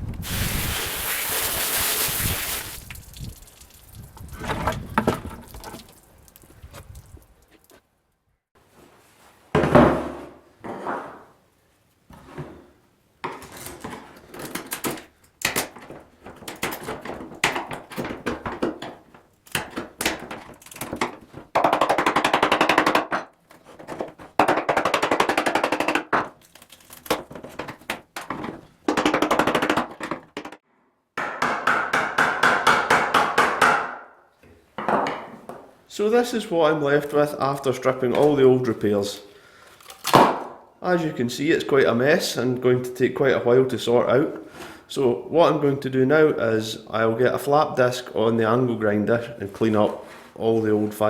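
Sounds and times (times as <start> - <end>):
knocks scraping and cracking: 2.7 - 7.8, 13.2 - 30.6.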